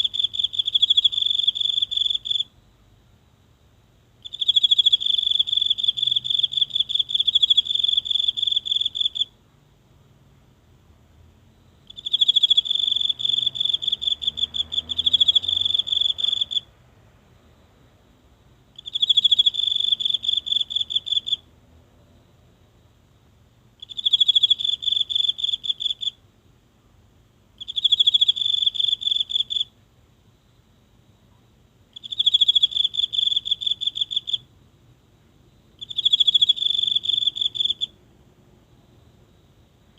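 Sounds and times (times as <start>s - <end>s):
insect trilling: 0.0s - 2.5s, 4.2s - 9.3s, 11.9s - 16.7s, 18.8s - 21.4s, 23.8s - 26.2s, 27.6s - 29.7s, 31.9s - 34.4s, 35.8s - 38.0s.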